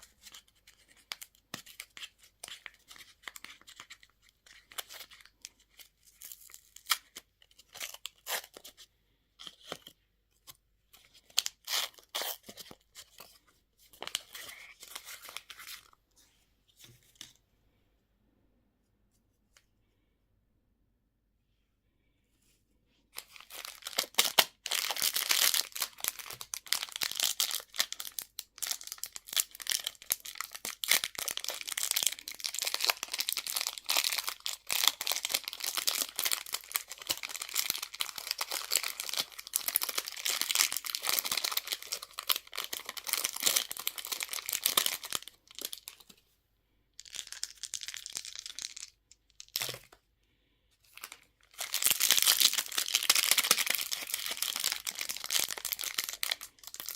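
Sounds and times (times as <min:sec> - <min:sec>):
wrapper crinkling and tearing: 0:23.2 - 0:46.1, 0:47.0 - 0:49.9, 0:50.9 - 0:56.9.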